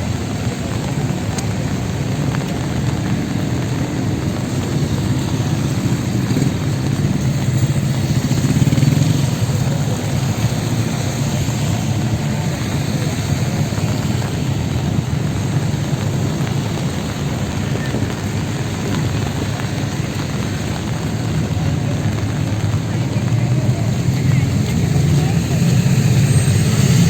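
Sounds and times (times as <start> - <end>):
vehicle engines passing: 0.0 - 27.0.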